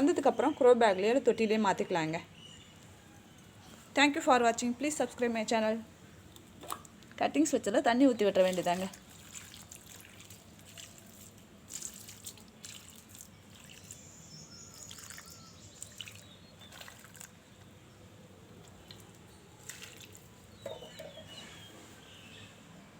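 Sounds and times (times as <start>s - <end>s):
water dripping and trickling: 6.3s - 7.2s, 8.1s - 17.8s, 18.6s - 21.2s
bird chirps: 13.5s - 16.9s, 20.5s - 22.6s.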